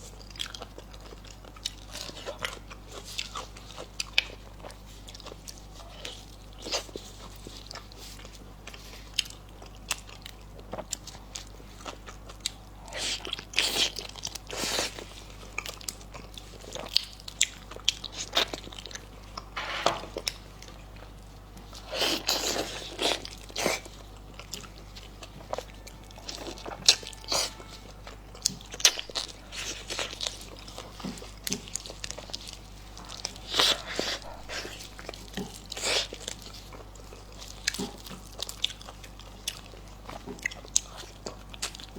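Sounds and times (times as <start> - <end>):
wet chewing: 20.1 - 41.9.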